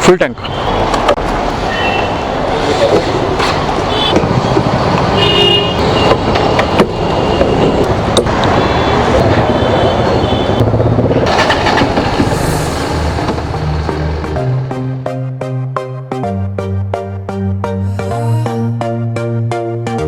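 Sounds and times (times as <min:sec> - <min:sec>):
road traffic engines: 0:00.0 - 0:15.2
car horn honks: 0:03.9 - 0:04.3, 0:05.1 - 0:10.6.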